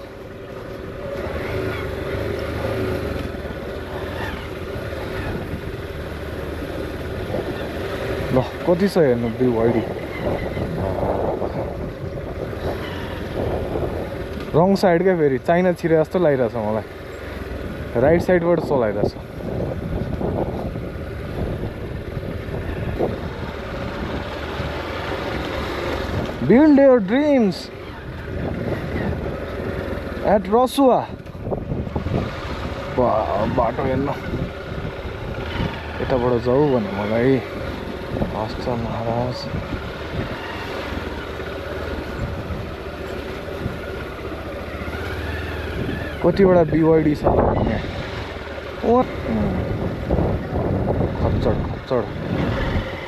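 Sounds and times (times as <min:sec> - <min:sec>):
motorcycle engine rumble: 0:00.0 - 0:53.0
wind on microphone: 0:09.6 - 0:14.4, 0:19.0 - 0:24.8, 0:28.0 - 0:30.0, 0:31.2 - 0:36.0, 0:37.7 - 0:40.6, 0:47.2 - 0:48.0, 0:49.0 - 0:53.0.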